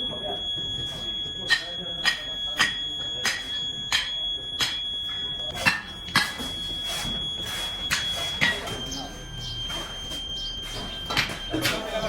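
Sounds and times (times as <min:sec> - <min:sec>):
steady high-pitched whine: 0:00.0 - 0:12.0
metal striking metal with ring: 0:01.4 - 0:04.9, 0:05.5 - 0:06.5, 0:07.9 - 0:08.8.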